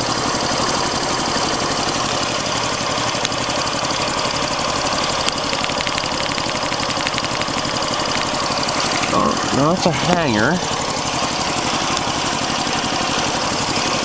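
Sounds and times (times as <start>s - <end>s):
engine idling with puffing: 0.0s - 14.0s
fast light ticking: 5.2s - 8.4s.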